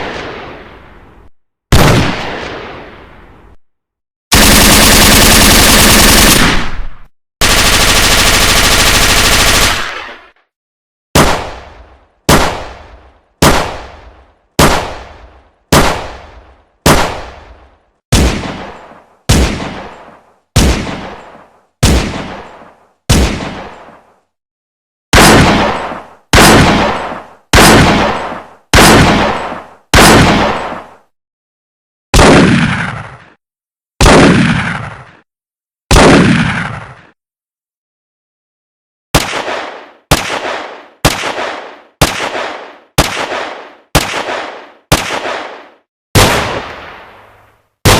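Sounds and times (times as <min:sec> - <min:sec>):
single gunshots: 0:01.7 - 0:03.1, 0:05.6 - 0:07.1, 0:11.2 - 0:14.0, 0:14.6 - 0:17.5, 0:18.1 - 0:24.0, 0:25.1 - 0:31.0, 0:32.1 - 0:33.4, 0:34.0 - 0:35.2, 0:35.9 - 0:37.1, 0:39.1 - 0:47.9
machine-gun fire: 0:04.3 - 0:10.4, 0:25.2 - 0:30.9, 0:39.2 - 0:47.9.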